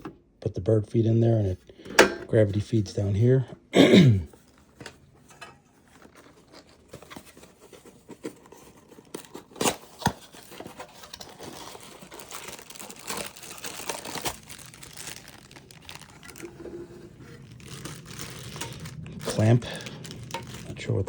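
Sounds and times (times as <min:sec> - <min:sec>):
plastic packaging crinkling: 0:05.8 - 0:21.0.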